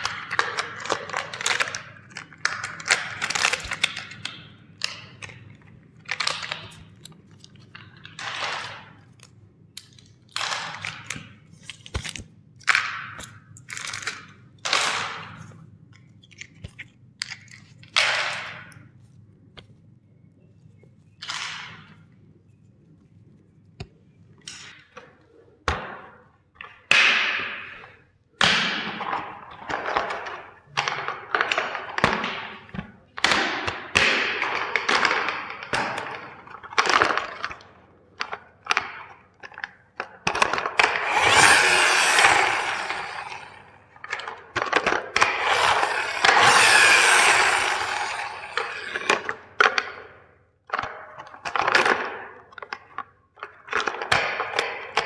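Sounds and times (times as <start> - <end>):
plastic toys cracking: 41.0 - 43.8, 45.2 - 49.2.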